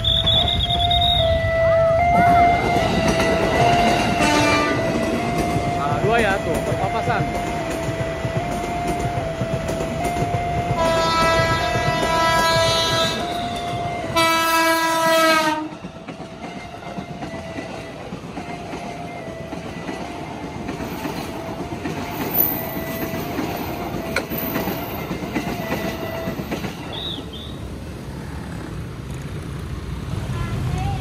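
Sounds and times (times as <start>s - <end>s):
train horn blast: 0.0s - 5.5s, 10.7s - 15.8s
train wheels rumbling and clacking: 0.0s - 31.0s.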